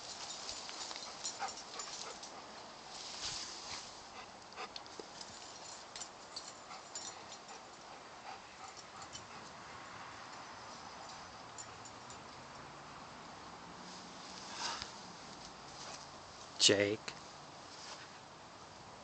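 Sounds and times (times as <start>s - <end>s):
dog scuffs and clicks: 0.1s - 2.5s.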